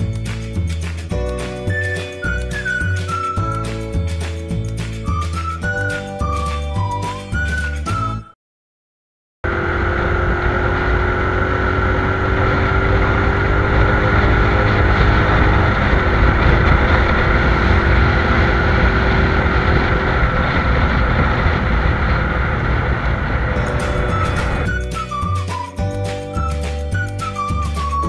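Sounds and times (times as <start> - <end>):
motorcycle engine running: 9.4 - 24.7.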